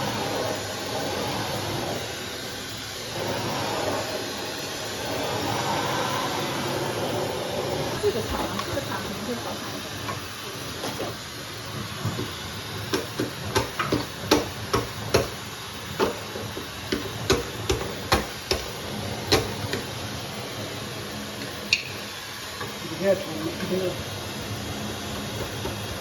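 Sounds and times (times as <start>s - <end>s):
hair dryer blowing: 0.0s - 10.1s.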